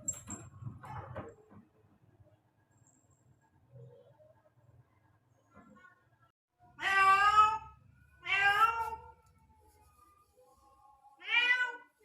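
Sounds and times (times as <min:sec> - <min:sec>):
cat meowing: 0:06.8 - 0:09.1, 0:11.2 - 0:11.9.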